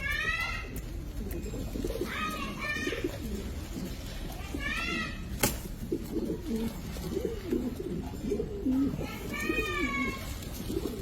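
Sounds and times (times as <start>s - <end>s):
dove cooing: 0.8s - 11.0s.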